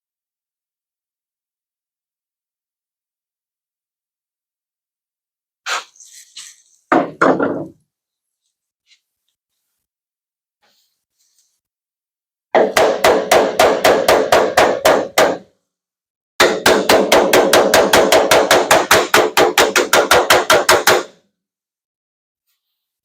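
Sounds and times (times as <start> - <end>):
hammer tapping on steel panel: 12.6 - 15.4, 16.4 - 21.1.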